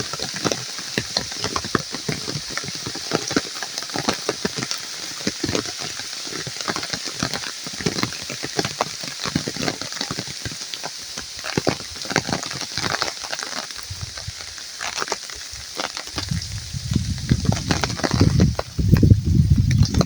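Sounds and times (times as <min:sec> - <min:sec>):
rain falling: 0:00.0 - 0:20.0
low uneven rumble: 0:13.8 - 0:14.6, 0:16.2 - 0:20.0.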